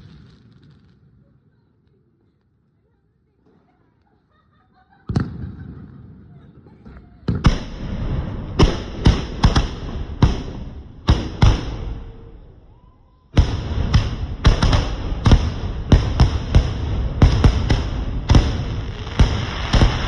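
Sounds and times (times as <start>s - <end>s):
firework bangs: 0.0s - 1.7s, 5.0s - 6.3s, 7.3s - 20.0s.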